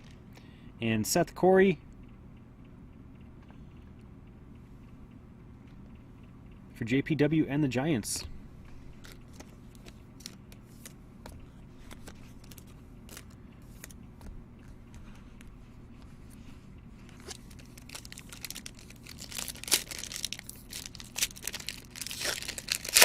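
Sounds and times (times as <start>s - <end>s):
cards flipping clicks: 9.0s - 14.8s
wrapper crinkling and tearing: 17.2s - 23.0s.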